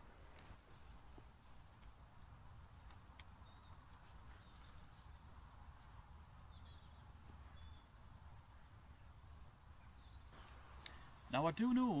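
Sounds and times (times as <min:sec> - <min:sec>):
faint high bird chirps: 0:02.8 - 0:05.6, 0:06.5 - 0:08.0, 0:09.8 - 0:11.4.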